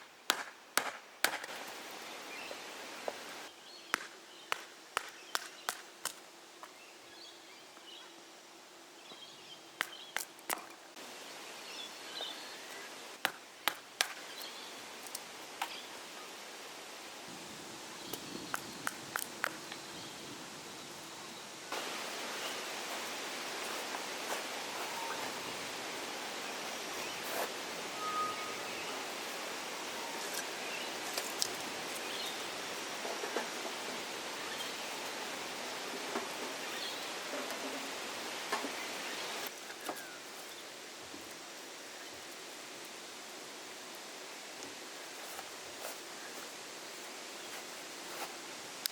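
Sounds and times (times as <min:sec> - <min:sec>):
outdoor hiss: 0:00.0 - 0:48.9
sharp snaps and clicks: 0:03.9 - 0:06.2.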